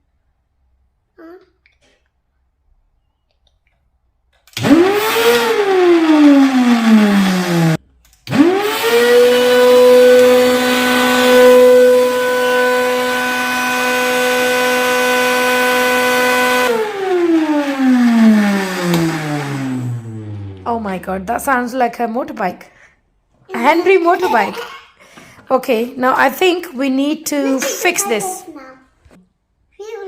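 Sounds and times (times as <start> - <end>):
vacuum cleaner motor whining: 4.6 - 21.7
low hum: 17.6 - 22.4.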